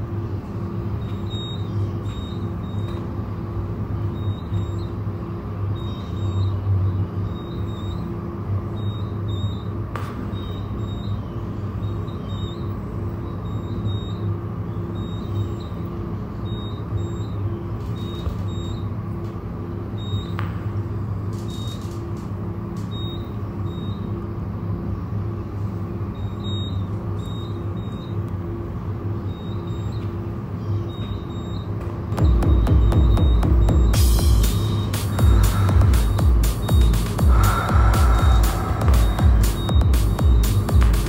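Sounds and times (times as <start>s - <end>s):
low electronic hum: 0.0s - 41.0s
softly pulsing tone: 32.8s - 40.7s.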